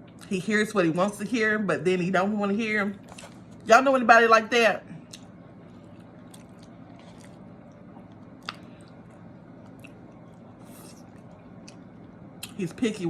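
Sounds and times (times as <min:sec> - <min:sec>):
person chewing food: 0:03.0 - 0:03.6, 0:05.0 - 0:12.6.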